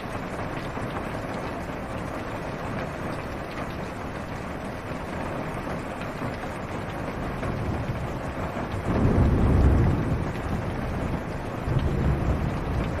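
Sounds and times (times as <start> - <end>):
rain on a car roof: 0.0 - 13.0
low even rumble: 8.8 - 13.0.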